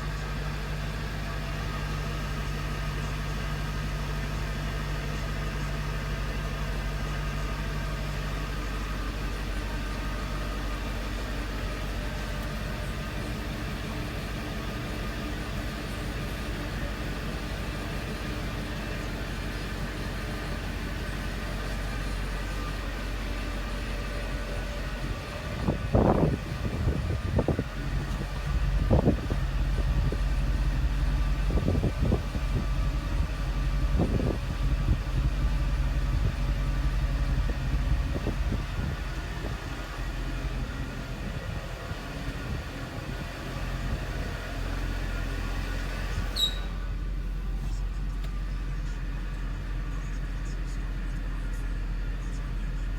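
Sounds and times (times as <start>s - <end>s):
car engine idling: 0.0s - 52.9s
engine throttle blips: 0.0s - 52.9s.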